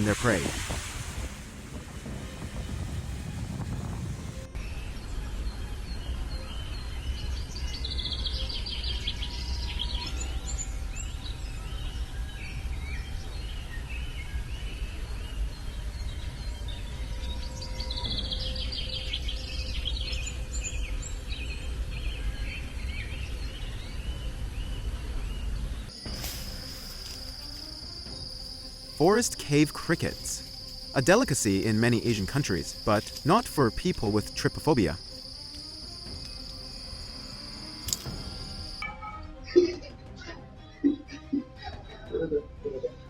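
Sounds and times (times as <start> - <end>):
small birds chirping: 4.7 - 38.8.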